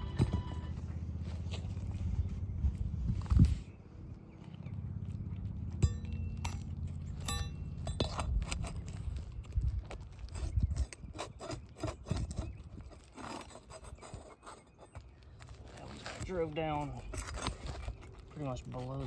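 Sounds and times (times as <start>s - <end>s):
low rumble: 0.0s - 10.9s
tools tapping and scraping: 5.7s - 19.0s.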